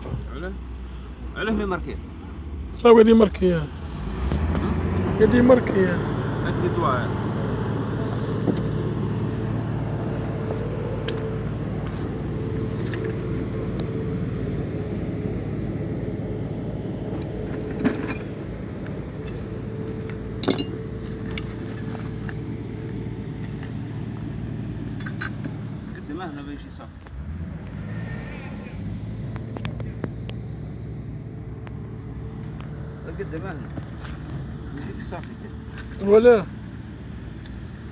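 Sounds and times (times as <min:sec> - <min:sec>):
engine humming: 0:00.0 - 0:37.9
metallic tool clinks: 0:17.1 - 0:18.4, 0:20.4 - 0:21.4.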